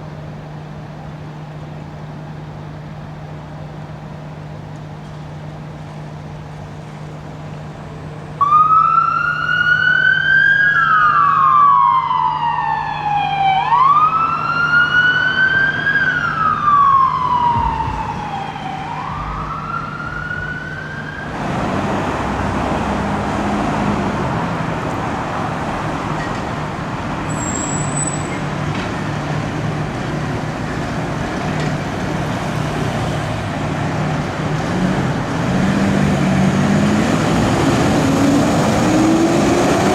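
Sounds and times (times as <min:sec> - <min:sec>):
electronic siren wailing: 0:08.4 - 0:21.4
vehicle passing on road: 0:14.2 - 0:27.3, 0:28.5 - 0:39.9
brief high squeal: 0:27.3 - 0:28.4.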